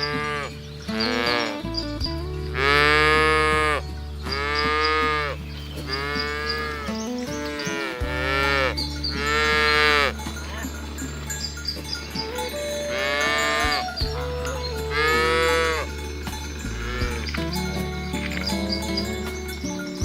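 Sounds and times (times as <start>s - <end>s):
cattle mooing: 2.6s - 10.2s, 12.9s - 14.0s, 14.8s - 15.9s.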